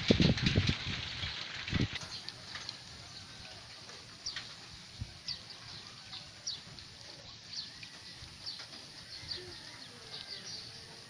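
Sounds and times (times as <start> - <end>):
low rumble of wind: 0.0 - 11.0
small birds chirping: 1.1 - 11.0.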